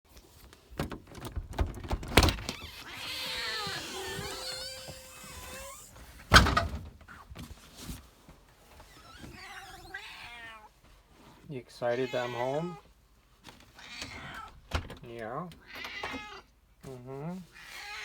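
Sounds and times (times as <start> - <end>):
cat meowing: 2.6 - 5.8, 9.2 - 10.7, 11.9 - 12.9, 13.8 - 14.6, 15.6 - 16.5, 17.5 - 18.0.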